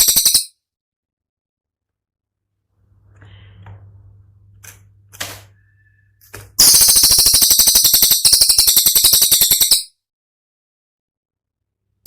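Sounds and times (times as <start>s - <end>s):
bird song stuttering burst: 5.8s - 9.9s.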